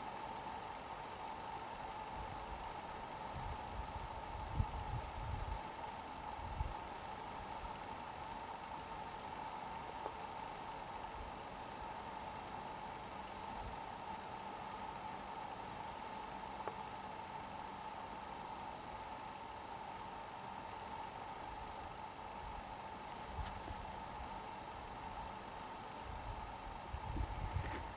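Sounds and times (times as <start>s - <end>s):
faint steady whine: 0.0s - 27.9s
insects chirring in trills: 0.0s - 27.9s
low insect drone: 0.0s - 27.9s
wind rumble on microphone: 3.4s - 5.6s, 26.9s - 27.9s.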